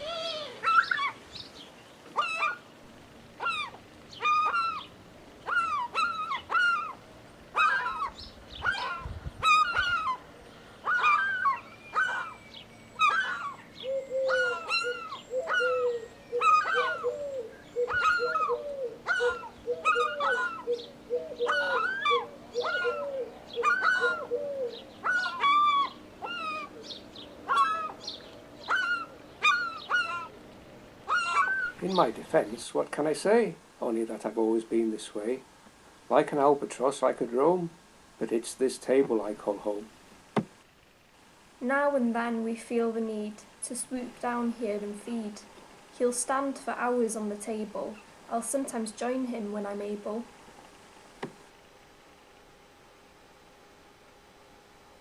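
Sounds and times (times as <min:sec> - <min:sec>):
fast low gull calls: 0:00.0 - 0:01.2, 0:02.1 - 0:02.7, 0:03.4 - 0:30.4, 0:31.0 - 0:32.0
seagulls calling: 0:00.0 - 0:30.4, 0:31.0 - 0:32.5.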